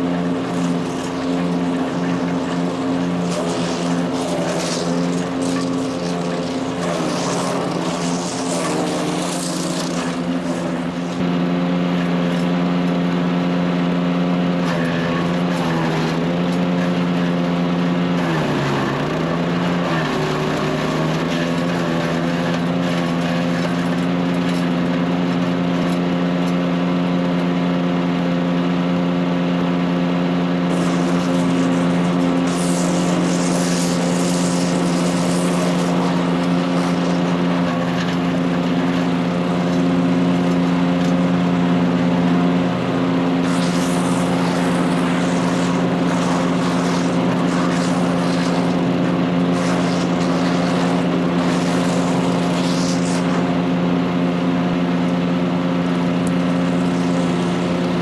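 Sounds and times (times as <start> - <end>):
bursts of hissy noise: 0.0 - 11.3, 30.7 - 54.6, 56.0 - 58.0
wood chipper engine running: 0.0 - 24.9, 30.5 - 58.0.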